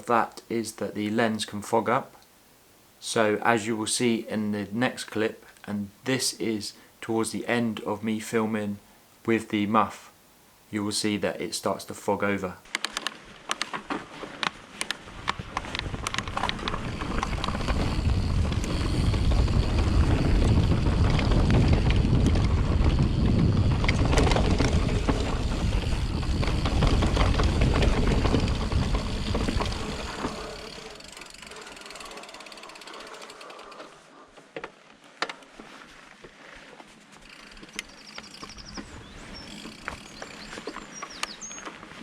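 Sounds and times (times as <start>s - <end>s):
low rumble of riding: 13.8s - 34.2s
bike freewheel ticking and rattling: 14.5s - 33.9s, 37.2s - 41.4s.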